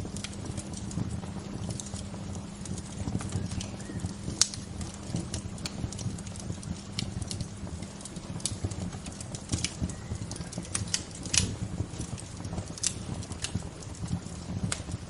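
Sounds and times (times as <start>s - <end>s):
bonfire crackling and popping: 0.0s - 15.0s
low steady rumble: 0.0s - 15.0s.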